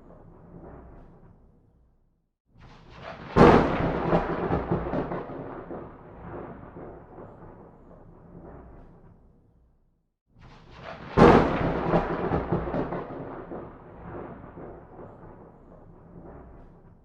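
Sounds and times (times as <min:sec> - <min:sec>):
thunderclap rumbling and cracking: 0:02.8 - 0:09.3, 0:10.5 - 0:17.0.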